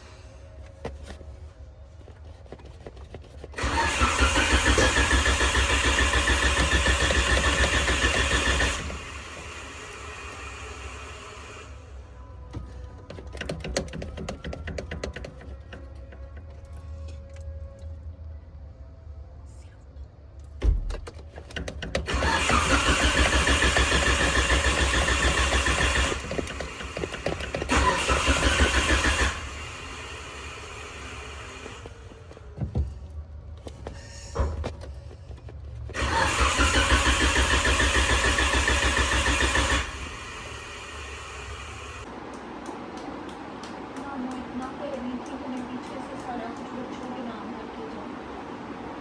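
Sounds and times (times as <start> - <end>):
starter motor cranking engine: 3.3 - 11.6, 12.6 - 16.6, 21.0 - 32.9, 35.9 - 42.1.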